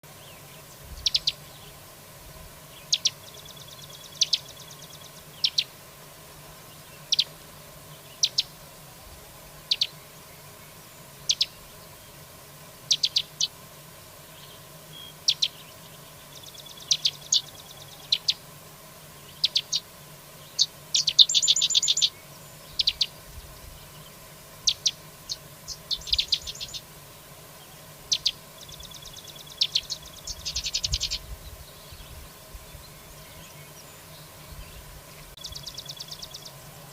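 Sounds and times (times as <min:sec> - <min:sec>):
buzzy bird trills: 0:00.3 - 0:01.8, 0:02.7 - 0:05.8, 0:06.5 - 0:08.6, 0:09.6 - 0:12.2, 0:12.8 - 0:13.6, 0:14.3 - 0:27.0, 0:27.6 - 0:34.6, 0:35.4 - 0:36.9.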